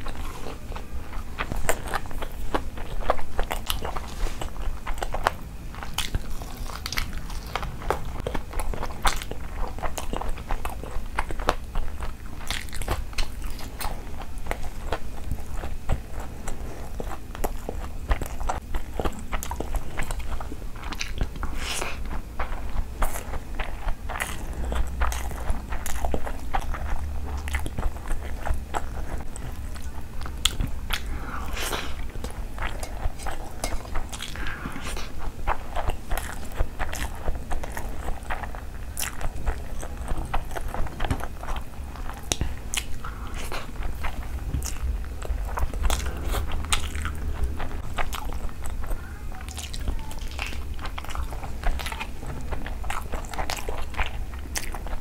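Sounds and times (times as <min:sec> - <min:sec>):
crunchy chewing: 0:00.0 - 0:55.0
low rumble: 0:39.2 - 0:49.0.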